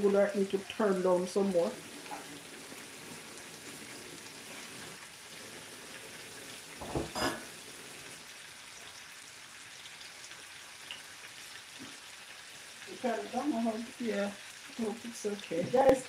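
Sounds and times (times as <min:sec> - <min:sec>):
food sizzling in a pan: 0:00.0 - 0:16.0
knocks: 0:06.8 - 0:07.3.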